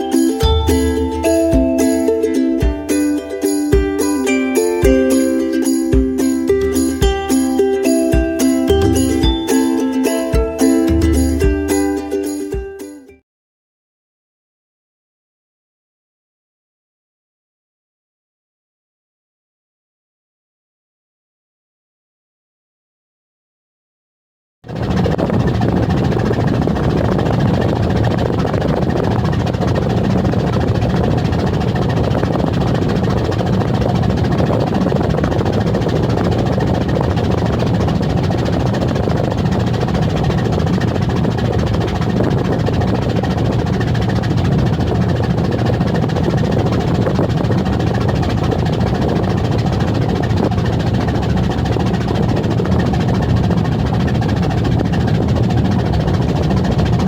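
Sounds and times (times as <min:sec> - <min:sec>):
ship engine drone: 0:00.0 - 0:12.4, 0:24.7 - 0:57.0.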